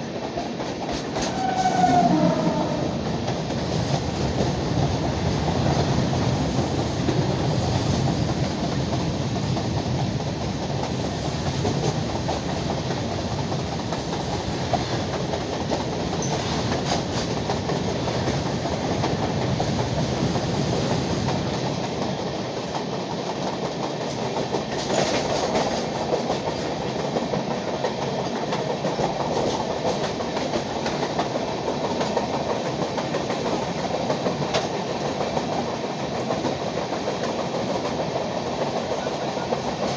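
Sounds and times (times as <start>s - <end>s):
train wheels rumbling on track: 0.0s - 39.9s
clicks over rail joints: 24.0s - 39.0s.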